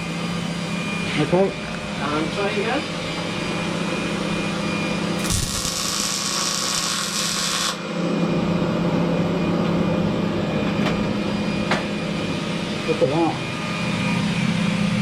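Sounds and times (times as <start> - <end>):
fume extractor humming: 0.0 - 15.0
welding arc crackling hiss: 5.2 - 7.8.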